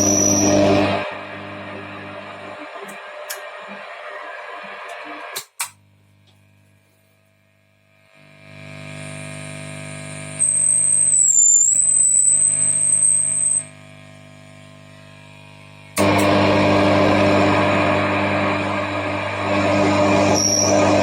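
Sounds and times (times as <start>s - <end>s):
high-pitched amplifier whistle: 0.0s - 5.2s, 10.3s - 13.8s, 17.1s - 21.0s
amplifier mains hum with hiss: 0.0s - 21.0s.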